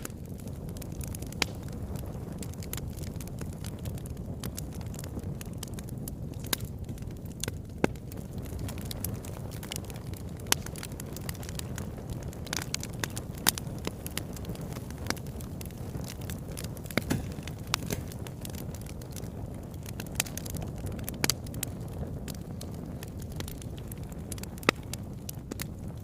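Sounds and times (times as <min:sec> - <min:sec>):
fire crackling and popping: 0:00.0 - 0:26.0
fire flames rumbling: 0:00.0 - 0:26.0.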